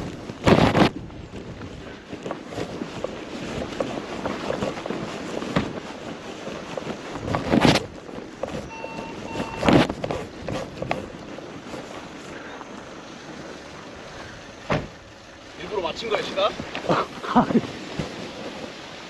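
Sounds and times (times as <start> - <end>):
wind buffeting microphone: 0.0 - 19.0
short faint beeps: 8.6 - 9.8.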